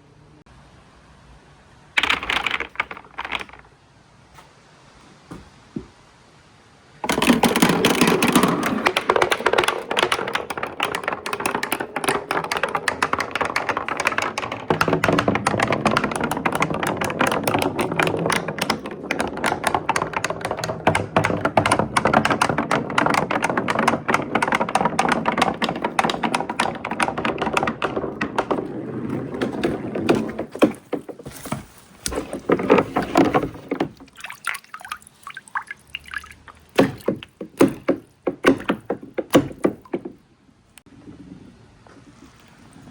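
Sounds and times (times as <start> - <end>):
marbles clattering down marble run: 2.0 - 3.7, 7.0 - 34.2, 34.9 - 40.1.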